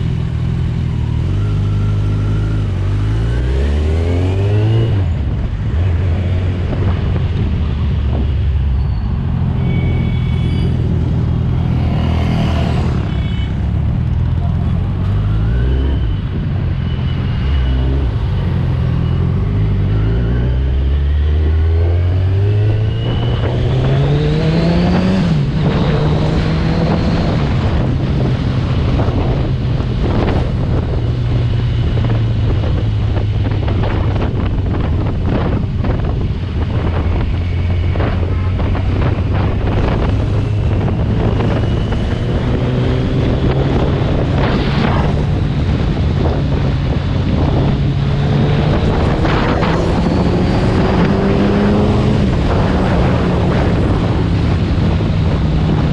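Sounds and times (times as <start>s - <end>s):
wind rushing over microphone: 0.0s - 55.9s
motorcycle engine revving: 16.9s - 55.9s.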